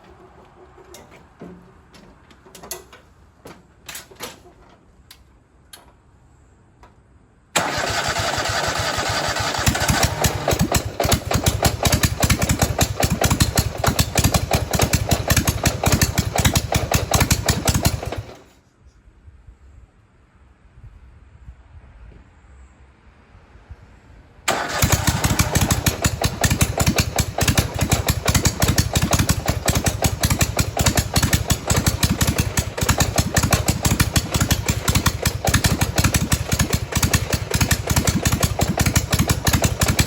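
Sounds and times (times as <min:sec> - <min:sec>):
light clicks and knocks: 0:00.0 - 0:06.0
lawnmower engine pulsing loudly: 0:07.6 - 0:18.5, 0:24.5 - 0:40.0.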